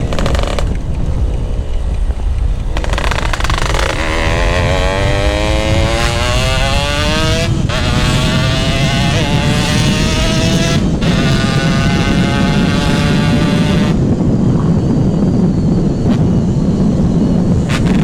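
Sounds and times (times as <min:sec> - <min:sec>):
two-stroke motorcycle engine accelerating: 0:00.0 - 0:14.4.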